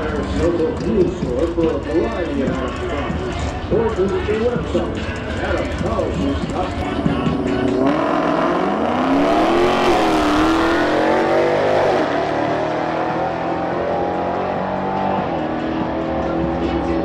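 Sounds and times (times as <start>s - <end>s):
car engine accelerating at full throttle: 7.2s - 17.0s.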